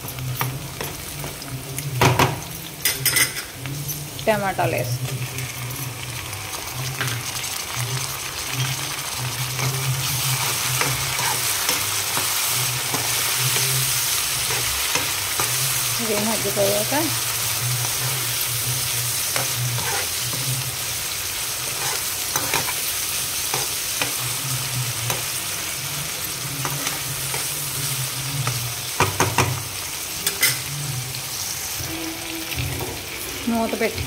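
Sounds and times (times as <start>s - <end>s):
vegetables sizzling in oil: 0.0s - 34.0s
spoon knocking and scraping pan: 9.5s - 16.9s, 17.9s - 20.6s, 21.6s - 22.8s, 28.4s - 30.7s.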